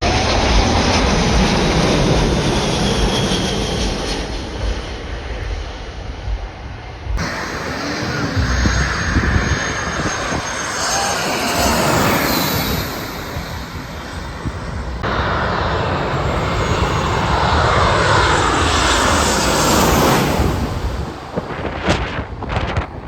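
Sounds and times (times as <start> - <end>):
jet engines rushing: 0.0 - 23.0.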